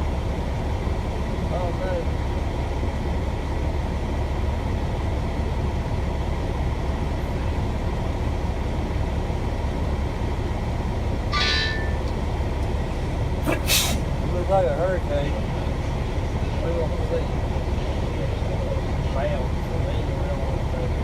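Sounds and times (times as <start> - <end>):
deep steady rumble: 0.0 - 21.0
sharp hiss: 13.5 - 14.0.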